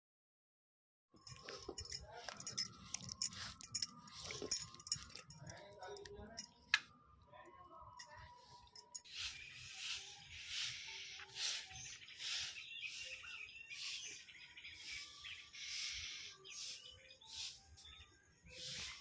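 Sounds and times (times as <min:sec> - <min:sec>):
birds chirping and calling: 0:01.2 - 0:19.0
short hissing bursts: 0:09.1 - 0:12.6.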